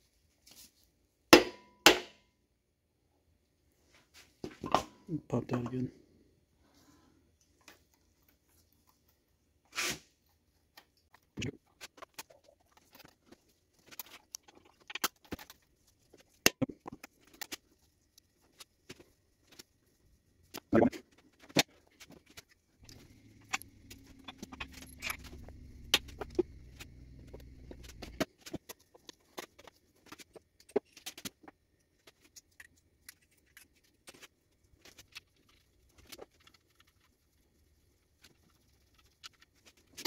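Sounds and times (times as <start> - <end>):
low steady hum: 22.8 - 31.0.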